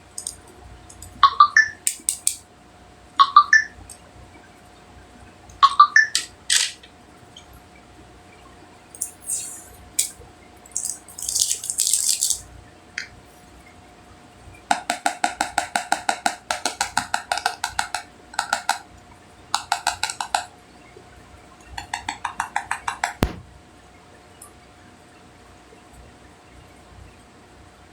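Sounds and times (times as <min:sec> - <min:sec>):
rapid tapping on a hard container: 0:14.7 - 0:18.9, 0:19.5 - 0:20.5, 0:21.7 - 0:23.4.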